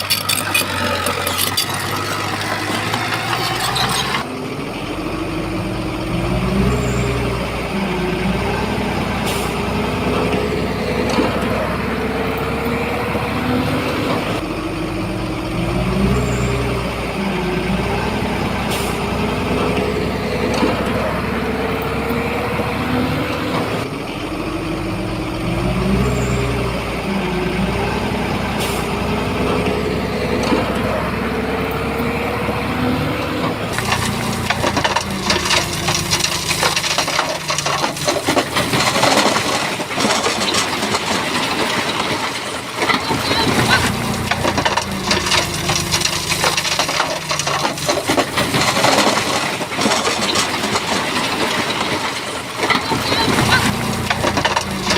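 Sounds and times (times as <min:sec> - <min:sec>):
crackling clatter: 0:00.0 - 0:04.6, 0:33.2 - 0:54.9
bulldozer diesel engine: 0:00.0 - 0:54.9.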